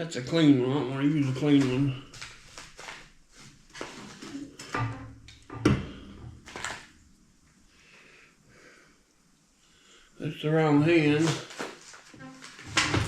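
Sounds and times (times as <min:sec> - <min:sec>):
parts knocking and clattering: 0:12.7 - 0:13.0.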